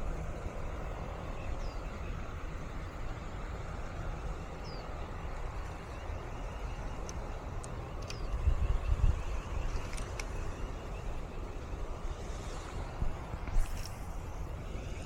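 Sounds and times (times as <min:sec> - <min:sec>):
wind noise on microphone: 0:00.0 - 0:15.0
breeze rustling: 0:09.3 - 0:15.0.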